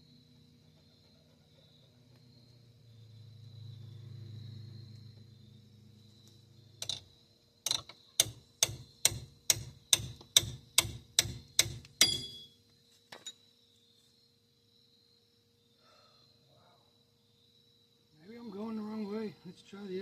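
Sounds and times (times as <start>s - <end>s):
hammer striking metal: 8.2s - 12.6s.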